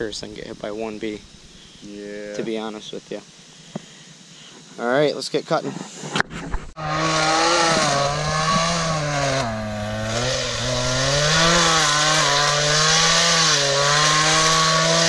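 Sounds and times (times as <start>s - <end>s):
chainsaw cutting brush: 6.8s - 15.0s.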